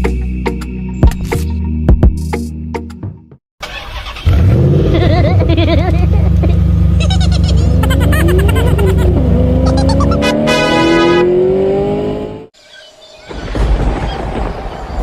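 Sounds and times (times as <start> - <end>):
music: 0.0 - 3.4
vehicle engine running: 4.2 - 11.5
rising tones: 7.6 - 12.5.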